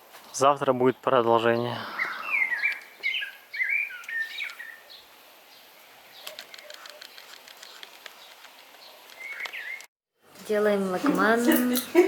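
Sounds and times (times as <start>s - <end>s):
small bird singing: 0.6s - 9.9s.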